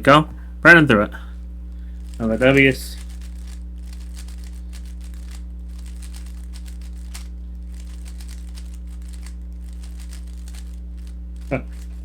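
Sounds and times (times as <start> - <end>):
low electrical hum: 0.0 - 12.0
puzzle cube clicking: 3.0 - 11.9.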